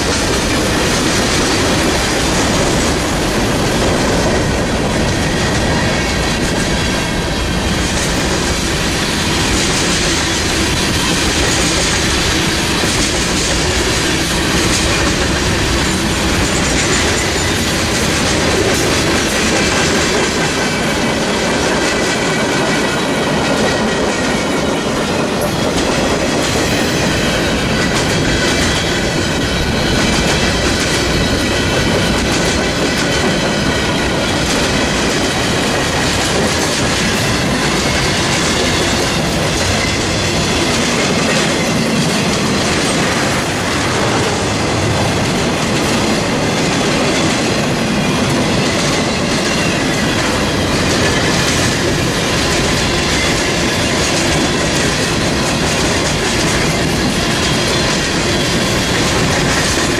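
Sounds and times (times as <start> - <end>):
train wheels clattering over joints: 0.0 - 59.9.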